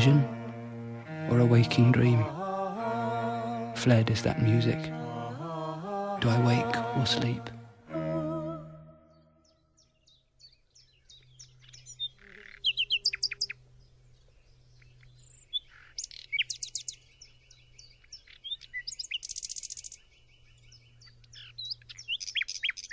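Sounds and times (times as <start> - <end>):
nightingale singing: 9.0 - 22.9.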